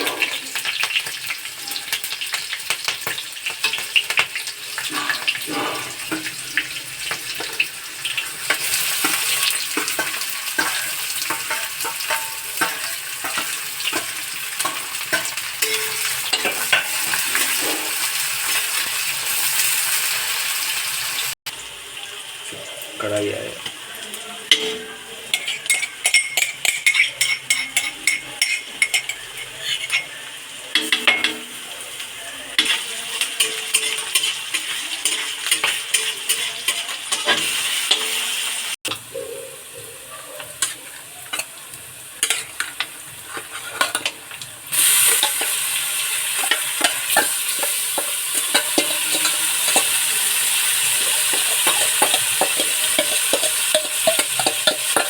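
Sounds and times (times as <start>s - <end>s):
food sizzling in a pan: 0.0s - 55.0s
utensil scraping metal pan: 4.8s - 6.6s, 8.4s - 18.2s, 24.5s - 31.6s, 32.6s - 38.3s, 42.2s - 55.0s.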